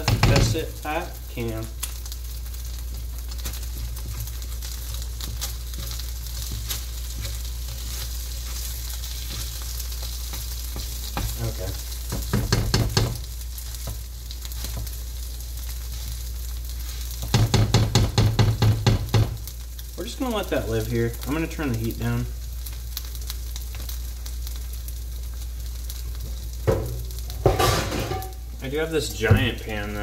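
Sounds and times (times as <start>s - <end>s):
pancake sizzling in a pan: 0.0s - 30.0s
spatula scraping a pan: 2.9s - 15.0s.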